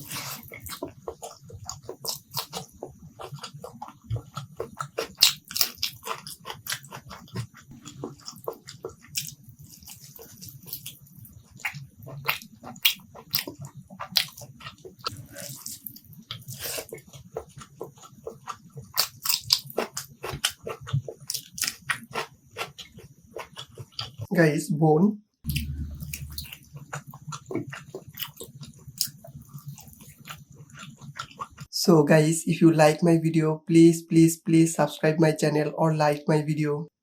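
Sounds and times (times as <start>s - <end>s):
person biting and chewing: 0.0s - 11.0s.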